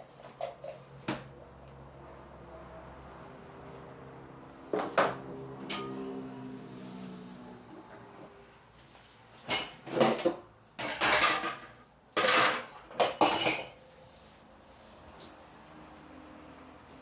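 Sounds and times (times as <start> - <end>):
dishes and cutlery clattering: 9.4 - 13.8.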